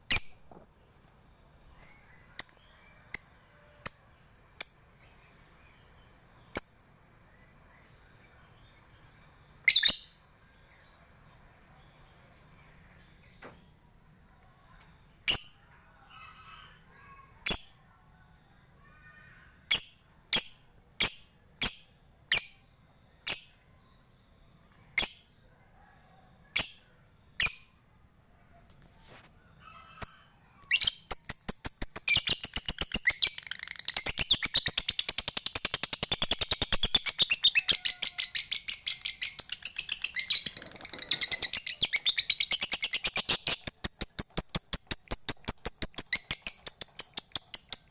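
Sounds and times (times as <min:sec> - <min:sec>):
lovebird high chirps: 0:00.1 - 0:00.4, 0:01.9 - 0:04.8, 0:09.6 - 0:10.2, 0:30.0 - 0:47.9
lovebird chattering trill: 0:30.0 - 0:47.9.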